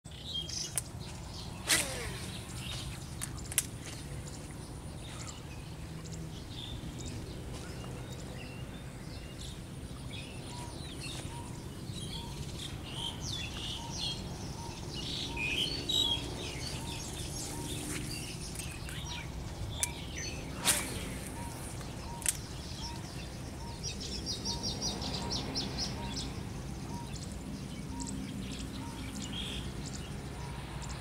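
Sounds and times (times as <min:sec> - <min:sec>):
birds chirping and calling: 0:00.1 - 0:31.0.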